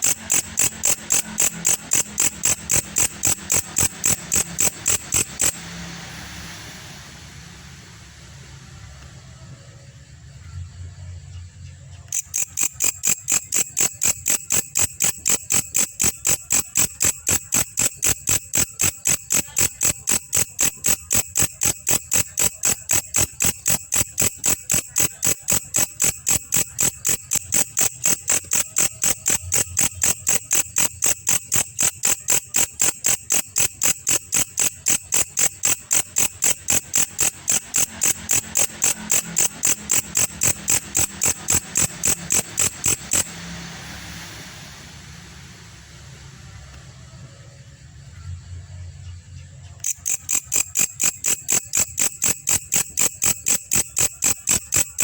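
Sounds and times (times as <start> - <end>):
katydid chirping: 0.0 - 6.2, 11.7 - 43.8, 49.6 - 55.0.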